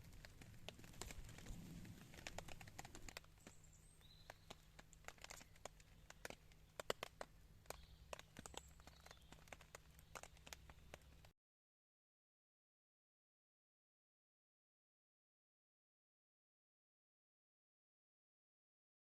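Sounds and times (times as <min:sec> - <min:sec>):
faint clicks and crackles: 0:00.0 - 0:11.3
faint bird chirps: 0:03.2 - 0:11.2.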